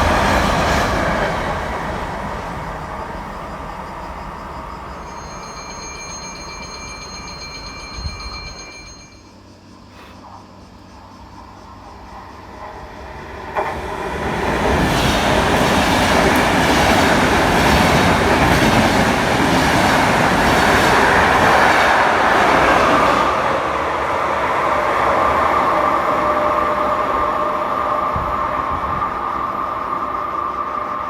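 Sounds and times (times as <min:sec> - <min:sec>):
train wheels rushing on rails: 0:00.0 - 0:09.2, 0:11.1 - 0:31.0
train whine: 0:00.0 - 0:31.0.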